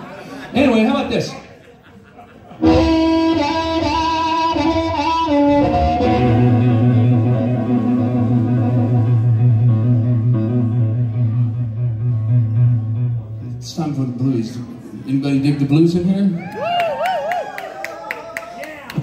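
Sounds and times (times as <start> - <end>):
guitar playing: 2.6 - 15.0.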